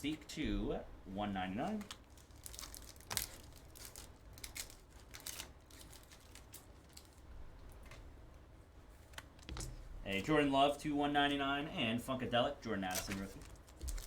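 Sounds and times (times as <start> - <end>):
cards and wrappers rustling: 1.6 - 8.0, 12.8 - 14.0.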